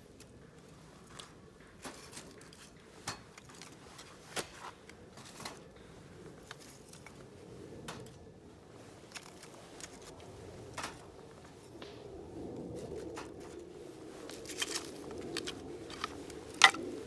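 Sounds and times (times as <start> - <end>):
faint steady background noise: 0.0 - 17.0
small hard objects clicking: 14.4 - 16.9.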